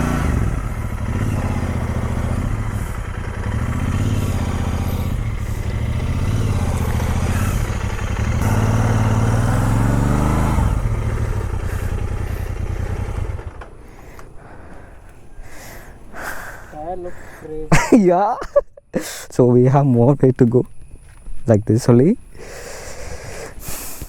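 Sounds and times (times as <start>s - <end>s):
motorcycle engine revving: 0.0s - 16.7s.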